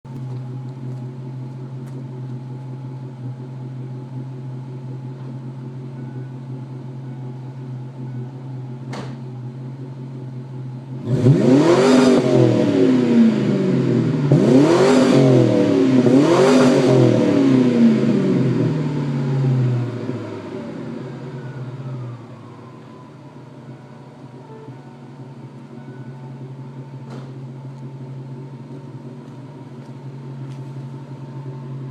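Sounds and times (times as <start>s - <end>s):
car engine idling: 0.1s - 31.9s
car engine revving: 7.9s - 23.0s.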